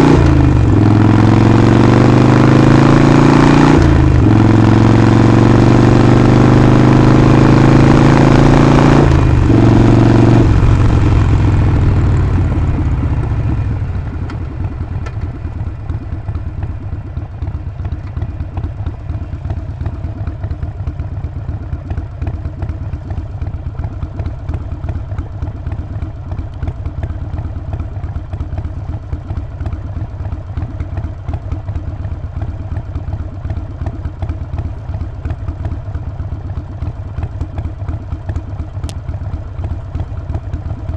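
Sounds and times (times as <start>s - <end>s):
motorcycle engine revving: 0.0s - 25.6s.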